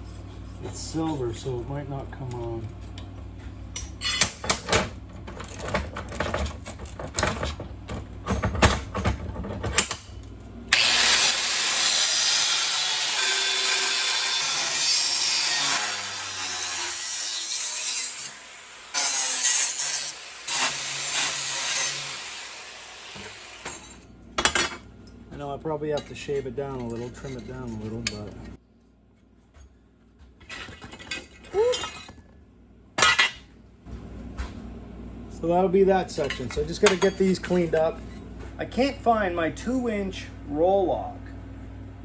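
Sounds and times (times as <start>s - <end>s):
knocks and clatter of handling: 4.1s - 10.0s, 29.5s - 32.4s
power tool cutting: 10.7s - 24.0s.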